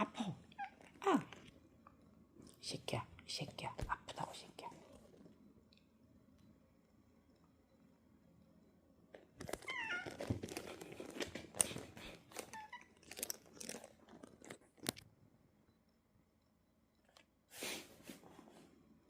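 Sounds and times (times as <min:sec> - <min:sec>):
cat chirp-like cries: 0:09.6 - 0:10.2.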